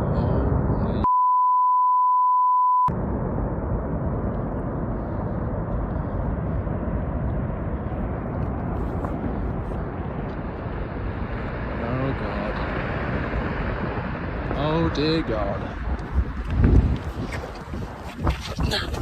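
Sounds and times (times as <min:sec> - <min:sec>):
censor bleep tone: 0:01.0 - 0:02.9
dense rushing noise: 0:02.9 - 0:19.0.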